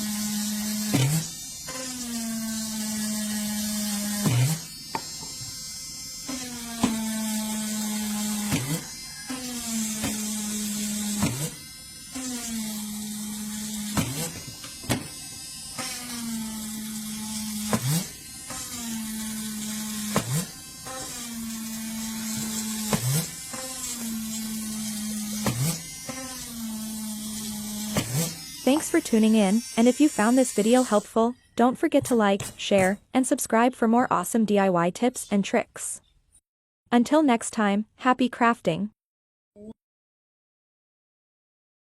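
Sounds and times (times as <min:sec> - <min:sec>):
rotary tool motor whining: 0:00.0 - 0:33.0.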